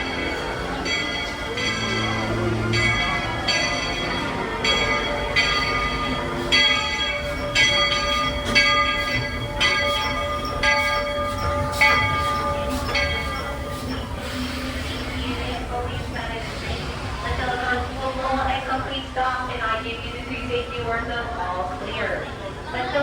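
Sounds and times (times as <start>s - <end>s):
locomotive bell ringing: 0.0s - 16.5s.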